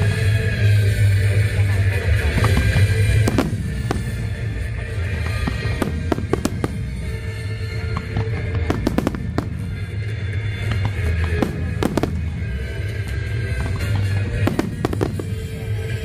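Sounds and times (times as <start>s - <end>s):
fireworks bangs and crackles: 0.0s - 16.0s
music playing: 0.0s - 16.0s.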